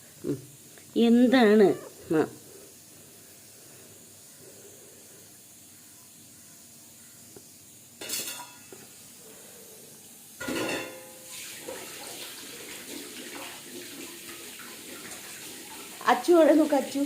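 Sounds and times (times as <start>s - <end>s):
dishes clattering: 8.0s - 8.8s, 10.4s - 12.0s.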